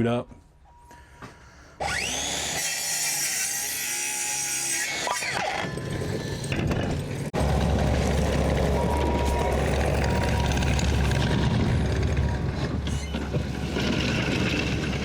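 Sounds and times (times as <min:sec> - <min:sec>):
power saw cutting wood: 0:01.8 - 0:15.0
engine running low and heavy: 0:07.0 - 0:15.0.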